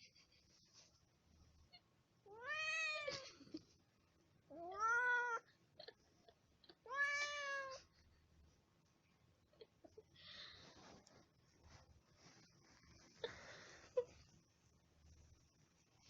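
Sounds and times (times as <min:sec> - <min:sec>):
cat meowing: 0:02.3 - 0:03.2, 0:04.5 - 0:05.4, 0:06.8 - 0:07.8.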